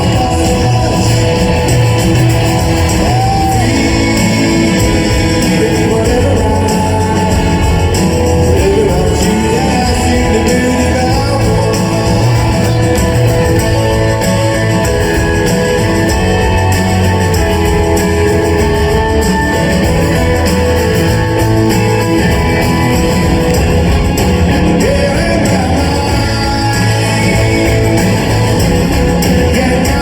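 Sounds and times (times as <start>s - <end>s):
guitars: 0.0s - 30.0s
live rock band: 0.0s - 30.0s
person singing: 0.0s - 30.0s.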